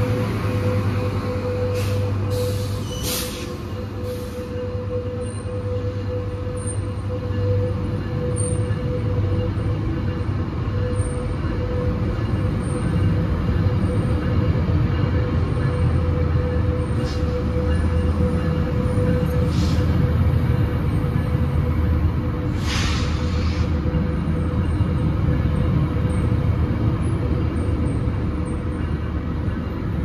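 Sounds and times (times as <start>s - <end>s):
diesel locomotive rumbling: 0.0s - 30.0s
brief hisses: 22.6s - 23.6s.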